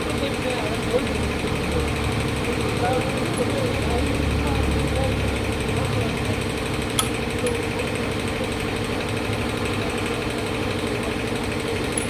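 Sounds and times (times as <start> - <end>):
machine rattling: 0.0 - 12.0
sharp click: 7.0 - 7.6.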